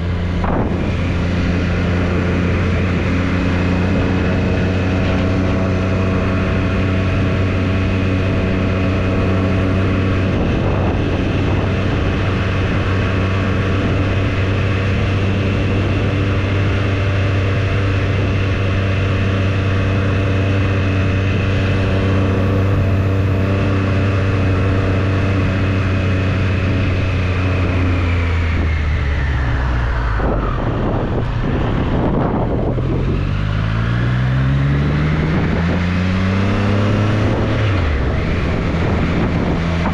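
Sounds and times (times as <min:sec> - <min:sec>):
motorcycle engine running: 0:00.0 - 0:39.9
wind rush: 0:00.0 - 0:39.9.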